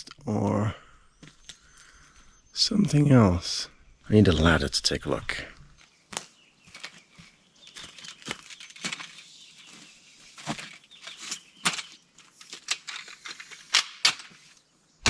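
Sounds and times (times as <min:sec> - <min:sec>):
rustling and handling noise: 0:05.2 - 0:14.8.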